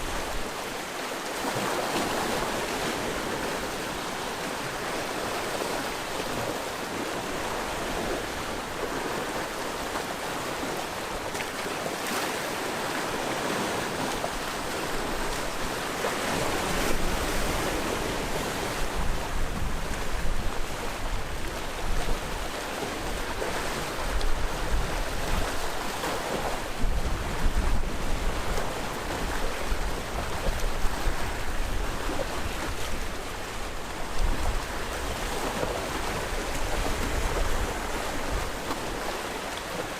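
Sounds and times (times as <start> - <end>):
sea waves surf: 0.0 - 39.9
wind buffeting microphone: 15.0 - 39.2.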